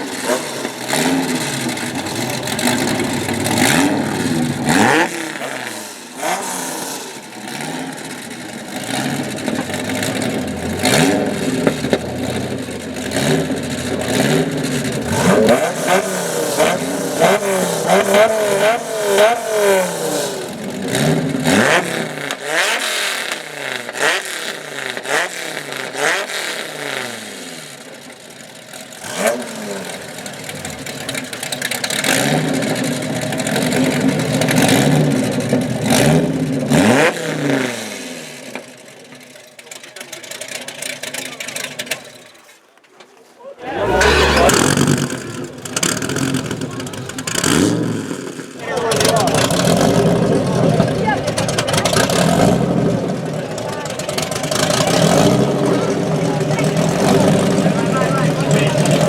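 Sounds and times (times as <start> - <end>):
exhaust cracks: 0.0 - 6.3, 43.6 - 59.0
car engine revving hard: 0.0 - 27.9, 28.8 - 38.5, 43.6 - 59.0.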